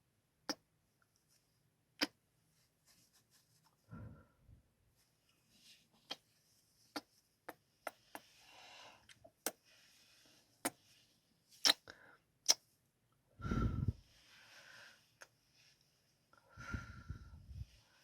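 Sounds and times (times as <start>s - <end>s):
soft breaths: 2.5s - 12.3s, 13.4s - 18.0s
kissing and lip smacks: 7.0s - 8.3s, 11.6s - 12.6s.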